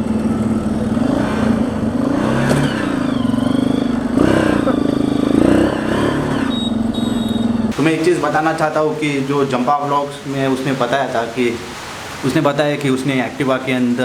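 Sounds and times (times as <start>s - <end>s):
motorcycle engine revving: 0.0s - 9.5s.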